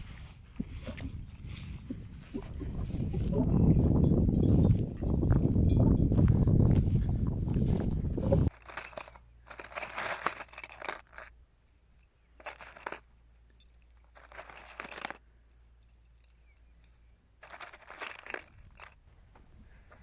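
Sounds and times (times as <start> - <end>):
objects rustling and clinking: 8.4 - 19.0.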